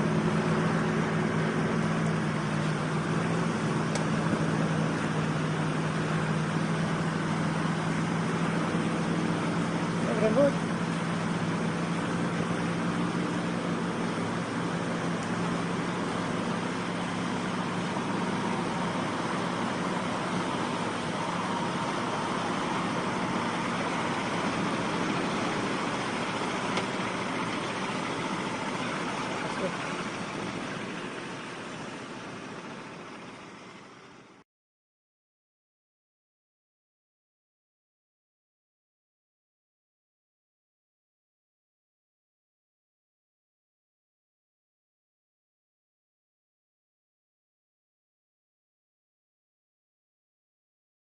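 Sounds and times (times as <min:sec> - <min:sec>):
engine running: 0:00.0 - 0:34.4.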